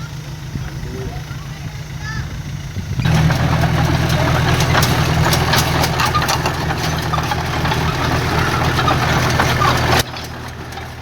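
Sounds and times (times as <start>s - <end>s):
diesel earthmoving machine running: 0.0s - 11.0s
sharp metallic clanks: 2.8s - 11.0s.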